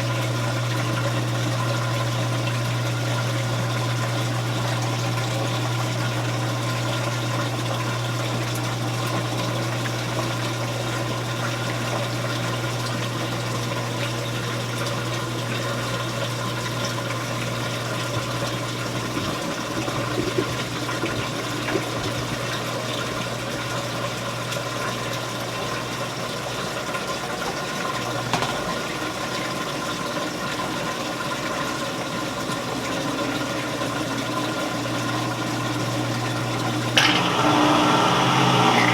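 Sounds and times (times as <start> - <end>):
washing machine motor hum: 0.0 - 38.9
water gurgling out: 18.1 - 23.5
small knocks: 28.3 - 28.8.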